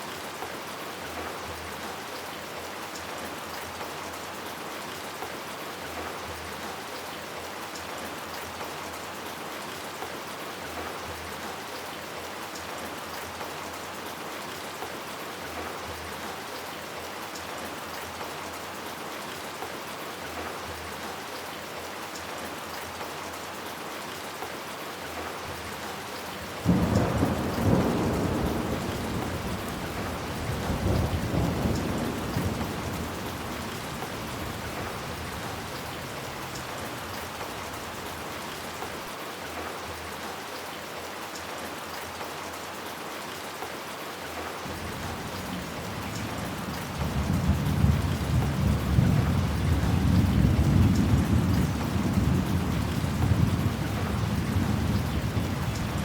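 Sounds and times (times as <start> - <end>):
steady rain falling: 0.0 - 56.0
thunder crack and rumble: 26.6 - 36.8, 44.7 - 56.0.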